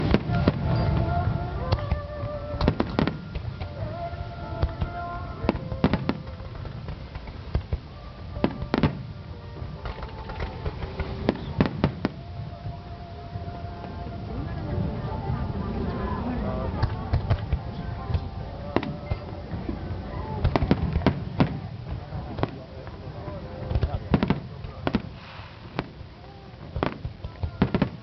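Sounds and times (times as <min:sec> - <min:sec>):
fireworks bangs: 0:00.0 - 0:03.8, 0:04.6 - 0:09.2, 0:09.8 - 0:12.3, 0:16.7 - 0:22.7, 0:23.6 - 0:28.0
music with long held notes: 0:00.0 - 0:25.1.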